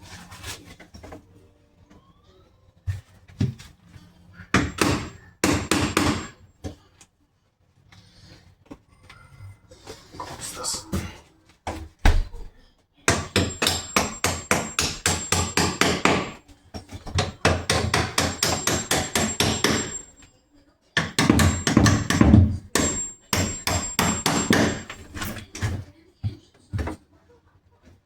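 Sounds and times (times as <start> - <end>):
hammer striking rapidly: 4.6 - 6.4, 13.1 - 16.4, 17.2 - 20.2, 21.0 - 25.7.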